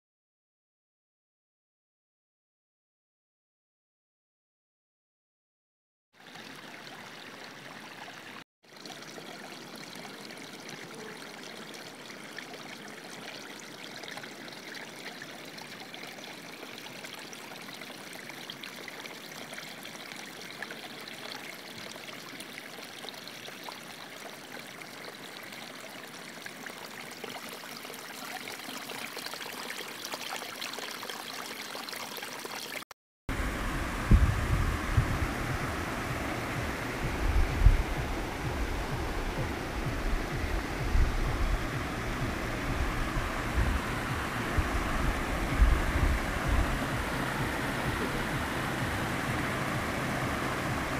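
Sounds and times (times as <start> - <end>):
running water rushing: 6.2 - 50.9
deep rumble: 33.3 - 50.9.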